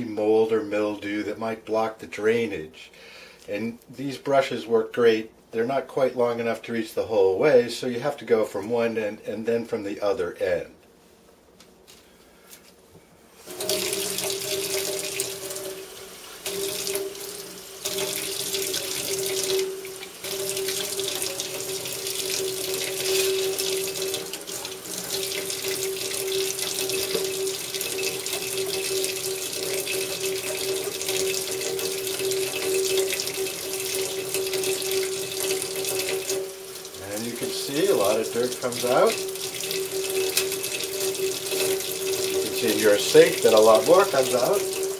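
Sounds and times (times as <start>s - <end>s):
faucet running water into sink: 13.3s - 44.9s.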